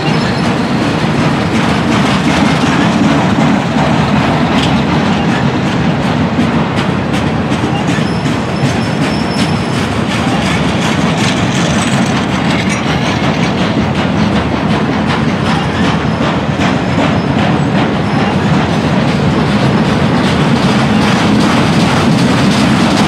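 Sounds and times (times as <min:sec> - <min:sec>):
train wheels rumbling on track: 0:00.0 - 0:23.0
wheel clicks on rails: 0:00.0 - 0:23.0
faint high wheel squeal: 0:07.7 - 0:09.9.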